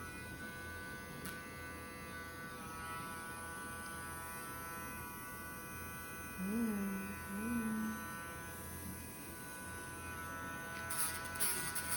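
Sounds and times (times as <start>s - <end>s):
nail grinder whining: 9.6s - 11.9s.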